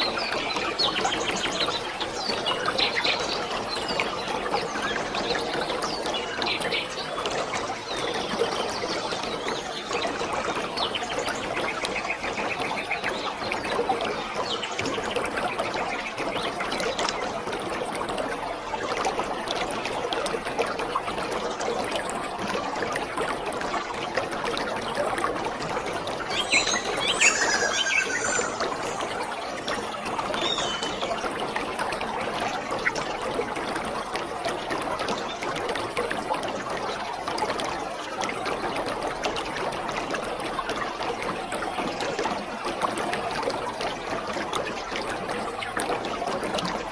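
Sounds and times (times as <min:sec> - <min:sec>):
waterfall rushing: 0:25.8 - 0:31.2
bird chirping: 0:25.8 - 0:31.3.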